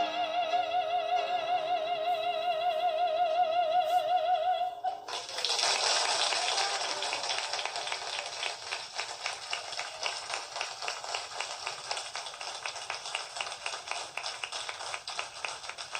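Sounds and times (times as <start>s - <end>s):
audience applauding: 5.1s - 15.9s.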